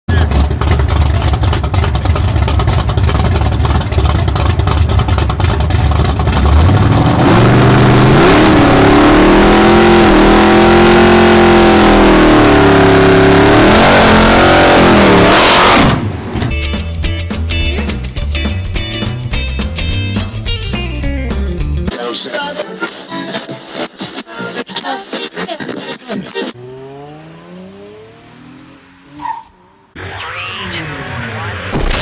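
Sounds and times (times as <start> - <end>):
car engine revving: 0.1 - 16.6, 26.5 - 32.0.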